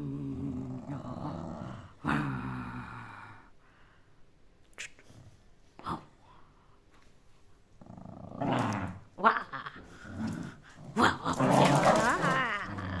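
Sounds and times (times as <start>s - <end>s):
dog growling: 0.0s - 3.5s, 7.8s - 13.0s.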